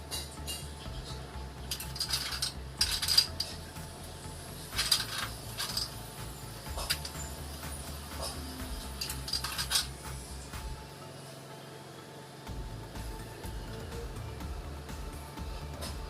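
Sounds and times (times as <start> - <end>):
sharp metallic clicks and clinks: 1.7 - 3.6, 4.7 - 10.3.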